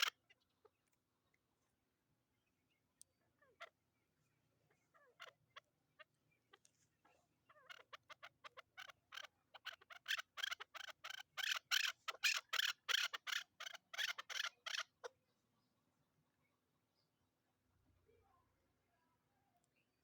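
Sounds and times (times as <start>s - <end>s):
partridge repeated short calls: 0.0s - 0.4s, 4.9s - 5.6s, 7.5s - 15.1s.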